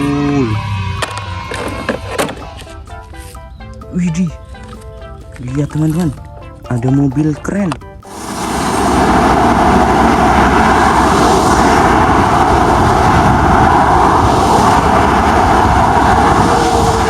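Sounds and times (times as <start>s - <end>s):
vehicle engine drone: 0.0s - 2.7s, 8.1s - 17.0s.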